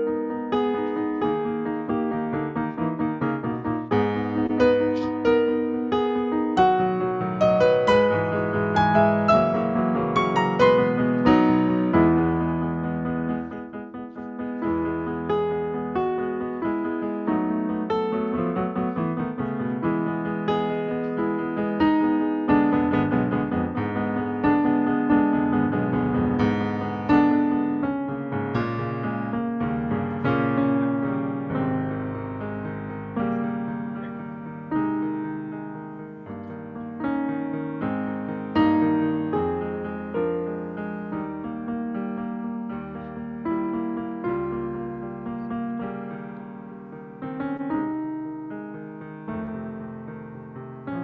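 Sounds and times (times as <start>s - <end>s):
slow gentle piano melody: 0.0s - 51.0s.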